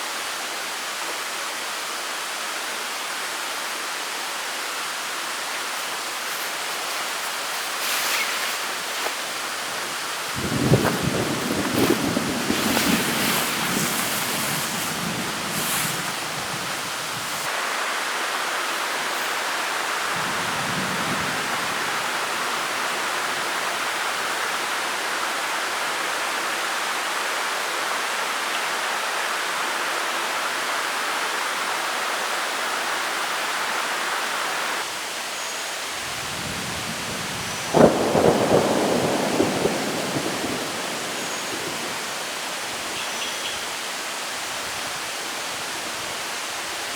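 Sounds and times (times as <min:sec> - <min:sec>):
heavy rain hiss: 0:00.0 - 0:46.9
thunderclap rolling into rumble: 0:10.3 - 0:17.5, 0:37.8 - 0:42.0.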